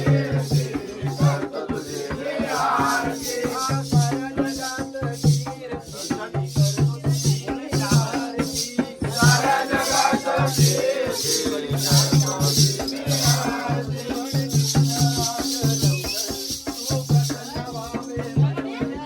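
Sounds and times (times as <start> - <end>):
drum beat: 0.0 - 19.0
man singing: 0.0 - 19.0
rattling jingles: 5.9 - 18.4.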